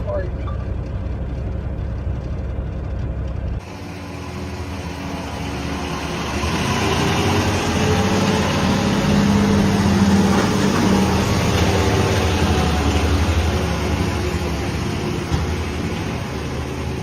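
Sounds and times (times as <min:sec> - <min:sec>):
vehicle engine rumbling: 0:00.0 - 0:17.0
loud noisy machine humming: 0:03.6 - 0:17.0.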